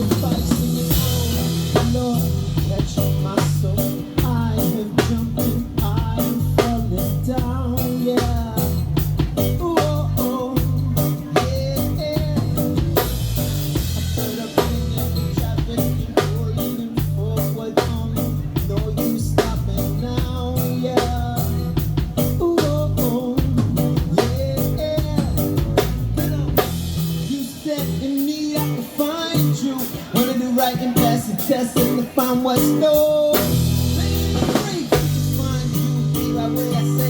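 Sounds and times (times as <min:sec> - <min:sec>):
live reggae-rock band: 0:00.0 - 0:37.0.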